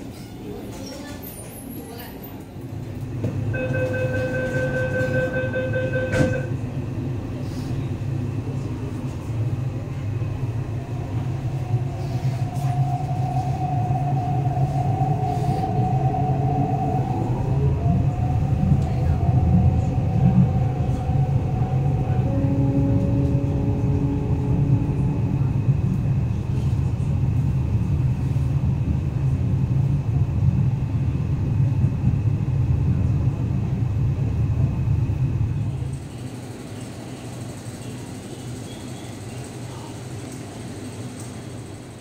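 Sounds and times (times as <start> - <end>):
train rumbling: 0.0 - 42.0
train doors shutting knock: 3.2 - 6.6
door-closing warning tone: 3.5 - 6.6
train motor whine: 18.8 - 26.0.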